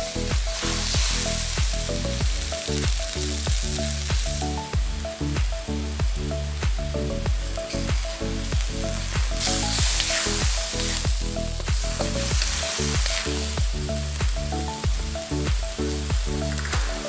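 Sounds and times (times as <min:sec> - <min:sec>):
chicken sizzling in a wok: 0:00.0 - 0:06.4, 0:07.3 - 0:17.0
background music with a beat: 0:00.0 - 0:17.0
spatula scraping a wok: 0:07.7 - 0:11.4.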